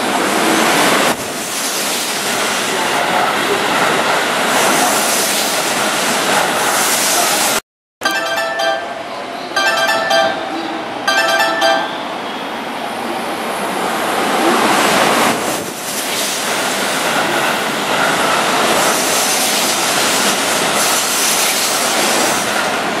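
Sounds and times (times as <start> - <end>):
train rushing past: 8.2 - 23.0.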